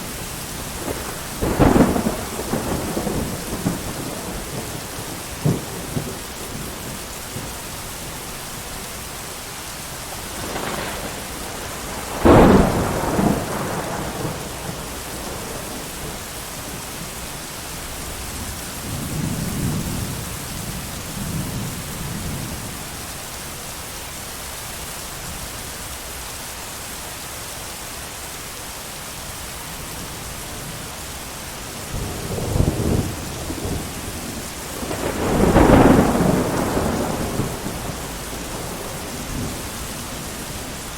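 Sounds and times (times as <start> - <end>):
heavy rain: 0.0 - 40.9
thunder cracking and rumbling: 0.6 - 7.6, 10.2 - 17.1, 31.7 - 40.9.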